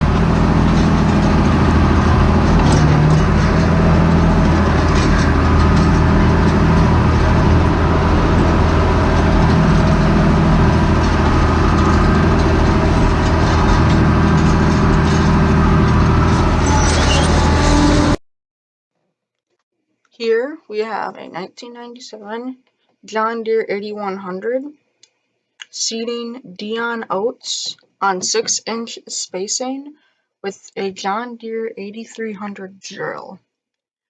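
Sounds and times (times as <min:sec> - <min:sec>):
tractor diesel engine running: 0:00.0 - 0:18.2.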